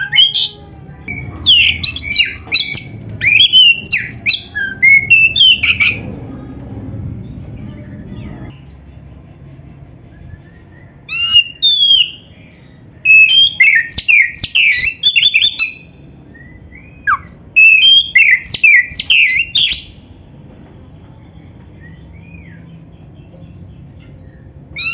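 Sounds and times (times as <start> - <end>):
bird whistles and chirps: 0.0 - 6.7, 10.3 - 12.3, 13.0 - 20.0, 24.3 - 24.9.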